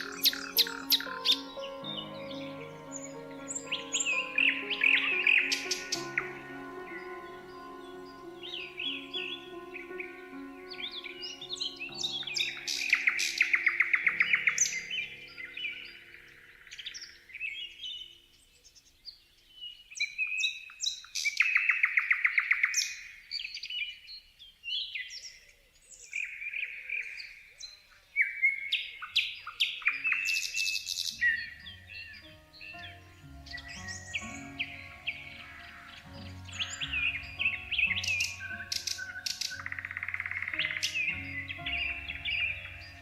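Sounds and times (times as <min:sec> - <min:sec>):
fast loud bird trill: 0:00.0 - 0:17.2
soft background music: 0:00.0 - 0:18.0, 0:29.8 - 0:43.0
songbirds singing: 0:00.0 - 0:43.0.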